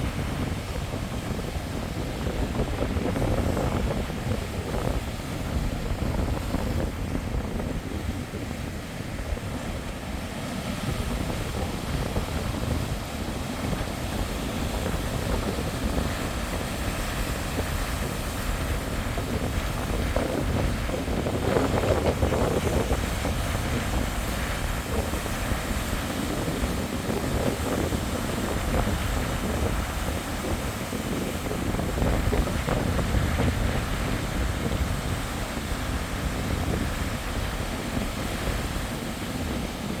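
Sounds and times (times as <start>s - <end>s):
strong wind buffeting microphone: 0.0s - 40.0s
surf breaking on shore: 0.0s - 40.0s.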